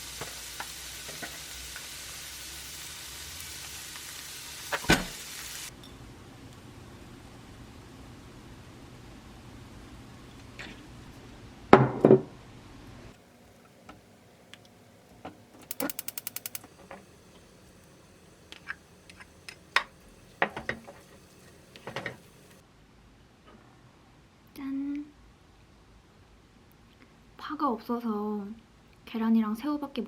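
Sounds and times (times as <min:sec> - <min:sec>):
rapid clicks: 0:15.6 - 0:16.8
dishes and utensils knocking: 0:18.6 - 0:21.2, 0:21.8 - 0:22.3.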